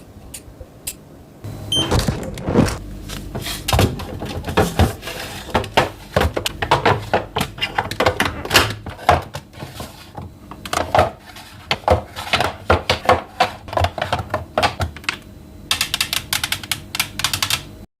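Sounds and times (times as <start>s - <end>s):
containers clicking and knocking: 3.7s - 9.9s, 10.5s - 16.6s.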